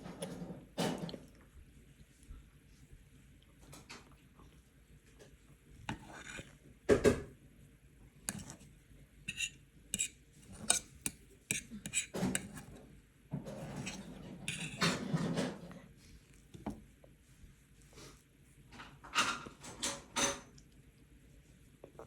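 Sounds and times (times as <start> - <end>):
cutlery clatter: 13.5 - 15.6
cutlery clinking on a plate: 13.5 - 15.6.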